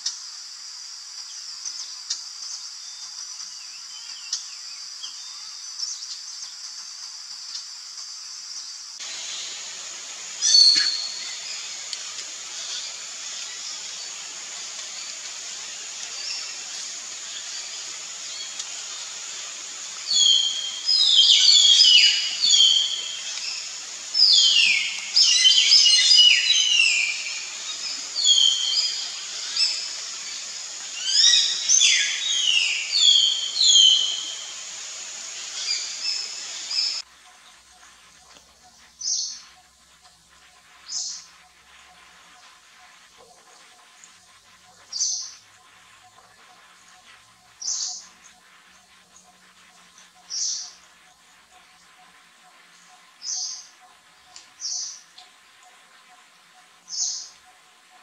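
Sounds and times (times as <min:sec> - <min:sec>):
steady high hiss: 0:00.0 - 0:58.0
birds calling descending notes: 0:09.0 - 0:37.0.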